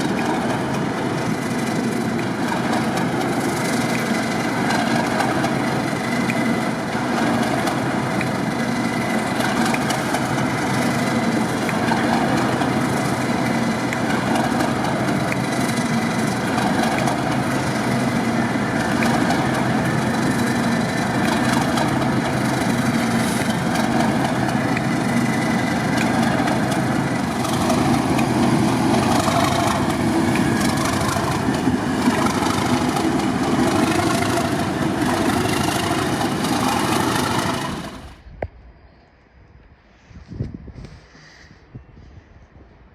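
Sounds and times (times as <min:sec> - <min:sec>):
train engine running: 0:00.0 - 0:38.4.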